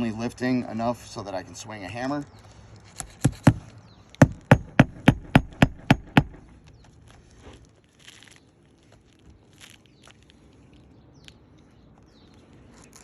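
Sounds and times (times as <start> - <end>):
hammer driving nails into shingle: 3.0 - 6.5.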